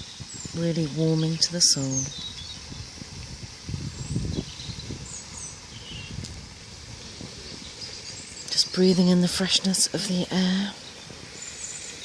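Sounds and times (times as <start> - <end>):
steady hiss: 0.0 - 12.0
wind buffeting microphone: 0.0 - 12.0
faint bird chirps: 3.9 - 6.2.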